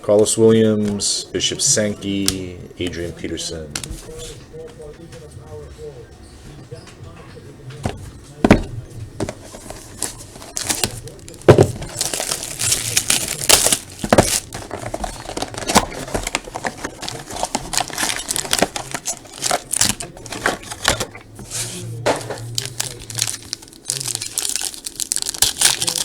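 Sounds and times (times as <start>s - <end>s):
wrappers crinkling: 9.0s - 26.0s
wrappers tearing: 9.4s - 26.0s.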